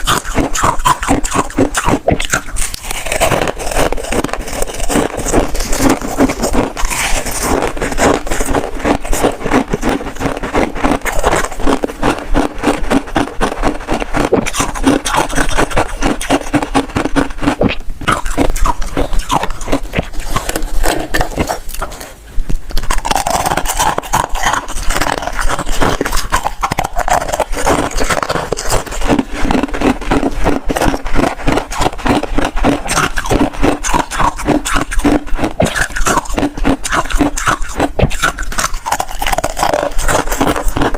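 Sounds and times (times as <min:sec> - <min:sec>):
crunching and chewing frost: 0:00.0 - 0:40.9.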